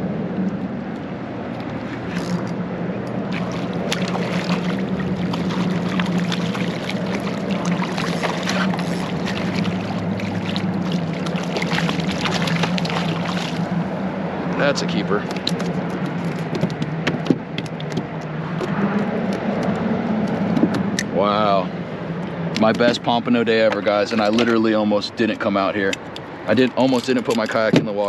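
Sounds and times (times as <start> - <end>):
electric trolling motor humming: 0.0 - 21.0
water noise: 0.0 - 28.0.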